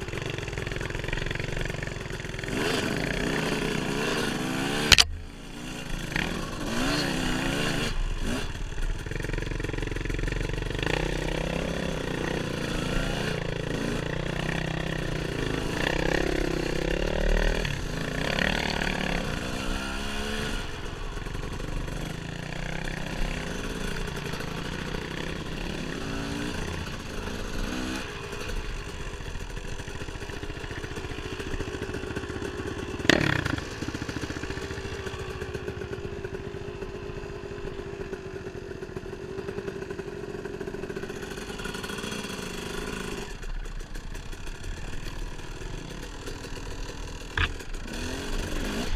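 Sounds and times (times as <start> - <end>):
dirt bike engine revving: 2.4 - 35.5, 46.9 - 48.9.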